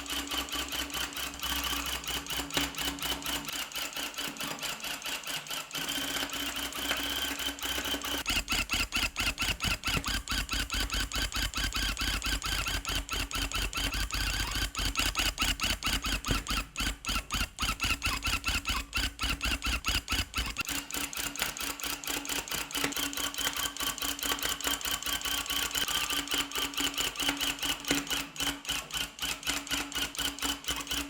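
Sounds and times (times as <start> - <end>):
tufting gun stitching: 8.2 - 20.7.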